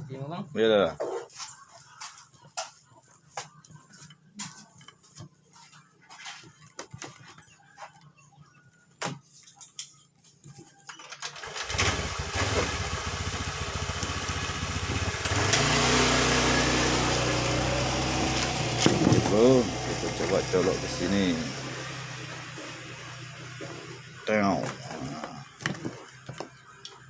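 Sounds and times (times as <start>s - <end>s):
engine starting and running: 11.0s - 27.0s.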